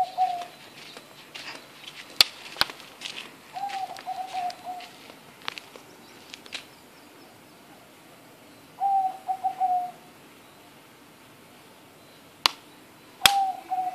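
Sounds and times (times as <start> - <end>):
bird call: 0.0 - 2.0, 3.5 - 5.2, 5.8 - 10.8, 11.9 - 13.9.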